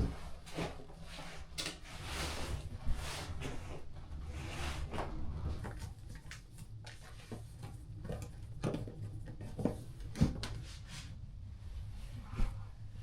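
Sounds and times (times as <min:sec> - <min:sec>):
objects knocking and rustling: 0:05.6 - 0:10.6.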